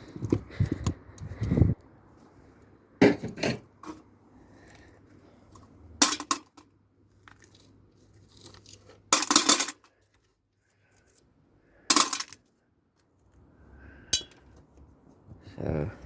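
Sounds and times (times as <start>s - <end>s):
small metal parts clinking: 6.0s - 11.2s, 11.9s - 12.6s.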